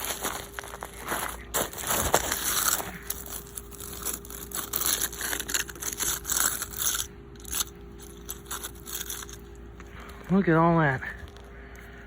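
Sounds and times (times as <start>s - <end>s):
footsteps crunching through icy snow: 0.0s - 6.8s.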